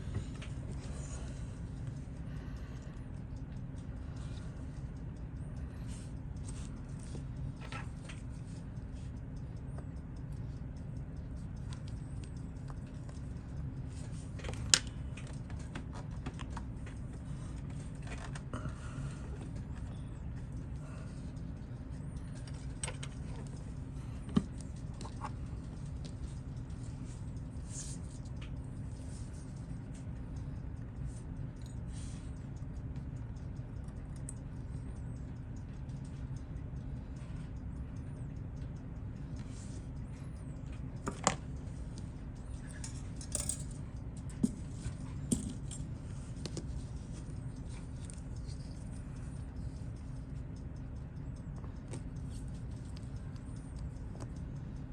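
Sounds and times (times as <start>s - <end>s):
steady low hum: 0.0s - 54.9s
watch tools clicking on a bench: 19.4s - 54.9s.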